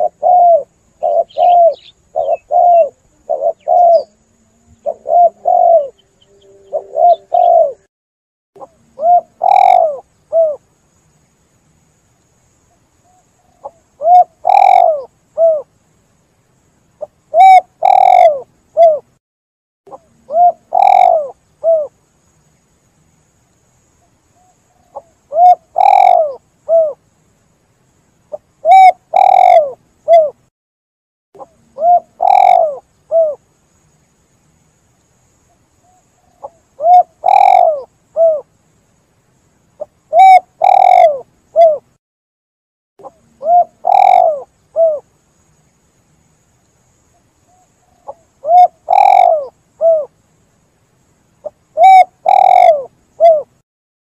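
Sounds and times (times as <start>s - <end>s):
dove cooing: 0.0s - 7.9s, 8.6s - 10.6s, 13.1s - 15.7s, 17.3s - 19.1s, 19.9s - 21.9s, 24.7s - 27.0s, 28.3s - 30.4s, 31.4s - 33.4s, 36.3s - 38.5s, 39.8s - 41.9s, 43.0s - 45.1s, 47.5s - 50.1s, 51.4s - 53.6s.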